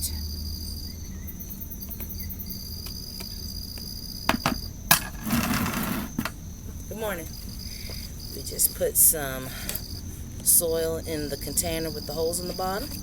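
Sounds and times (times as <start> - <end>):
crickets trilling: 0.0 - 13.0
rustling scrape of soil: 5.0 - 6.4.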